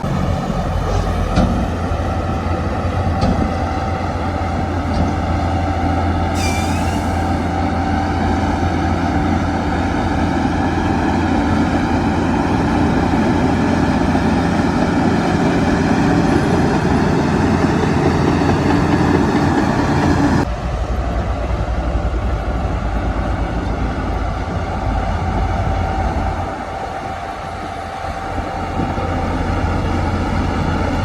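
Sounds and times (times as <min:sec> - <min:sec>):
heavy diesel machinery running: 0:00.0 - 0:31.0
high squeal: 0:06.3 - 0:07.6.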